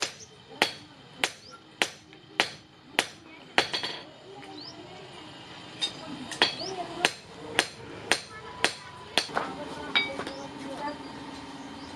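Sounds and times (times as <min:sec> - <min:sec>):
hammer striking steel on anvil: 0:00.0 - 0:04.1, 0:05.8 - 0:10.3.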